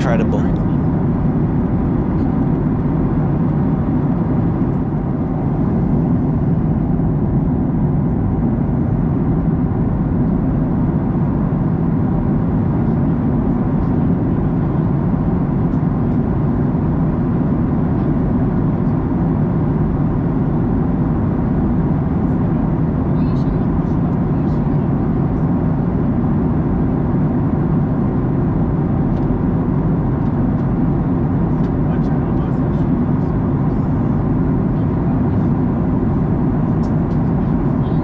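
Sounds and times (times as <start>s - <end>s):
airplane cabin noise: 0.0s - 1.5s.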